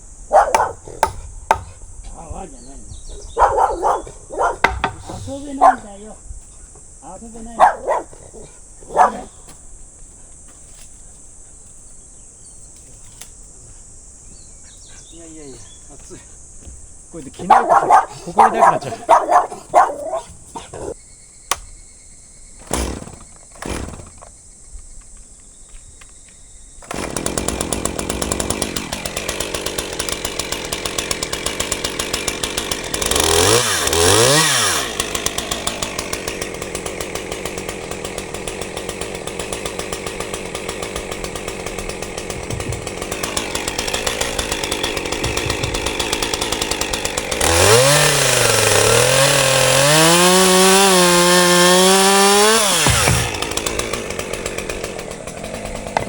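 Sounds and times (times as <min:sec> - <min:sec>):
sharp knocks: 0:00.5 - 0:01.8, 0:04.6 - 0:05.3, 0:41.7 - 0:46.4, 0:52.7 - 0:53.9
chainsaw engine revving: 0:17.4 - 0:20.3, 0:22.6 - 0:24.2, 0:26.8 - 0:56.0.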